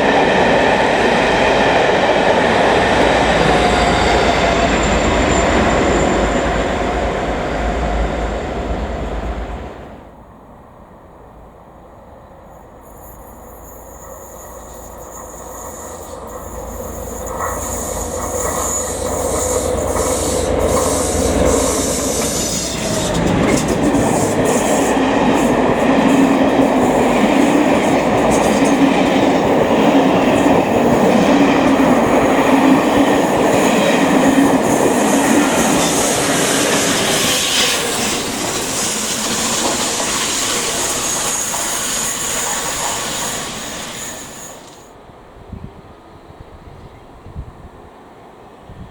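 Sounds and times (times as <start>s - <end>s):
train wheels on rails: 0.0s - 10.2s, 12.5s - 45.1s
thin high wheel squeal: 3.5s - 6.8s, 12.8s - 24.9s, 34.2s - 44.9s
diesel locomotive rumble: 15.2s - 43.6s.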